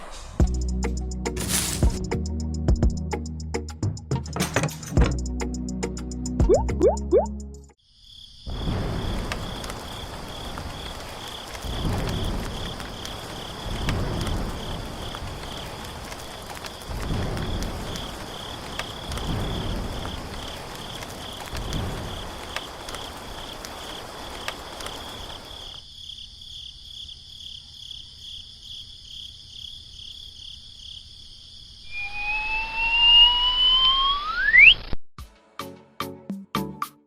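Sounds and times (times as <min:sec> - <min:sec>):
outdoor background noise: 0:07.8 - 0:35.0
insects chirping in pulsing trill: 0:22.0 - 0:34.8
rising whistle-like tone: 0:31.9 - 0:35.0.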